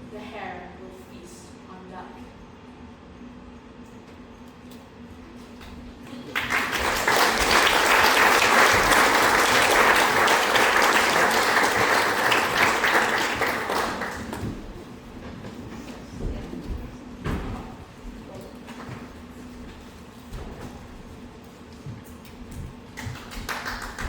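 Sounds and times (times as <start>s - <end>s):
audience applauding: 6.1s - 14.8s, 23.0s - 24.0s.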